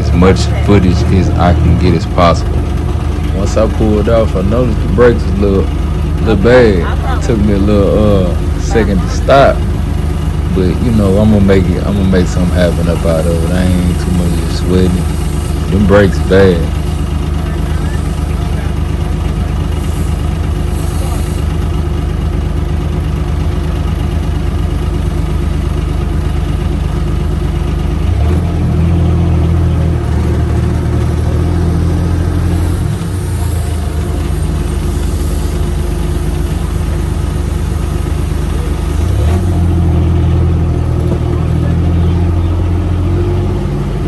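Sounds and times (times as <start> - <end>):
utility vehicle engine idling: 0.0 - 44.0.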